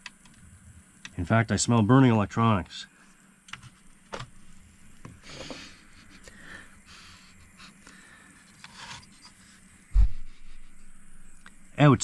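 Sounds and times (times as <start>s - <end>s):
person sniffing: 5.2s - 8.3s.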